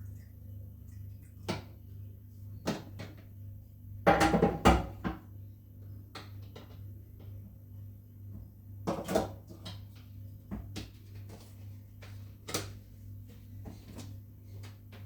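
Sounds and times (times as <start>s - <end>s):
steady low hum: 0.0s - 4.1s.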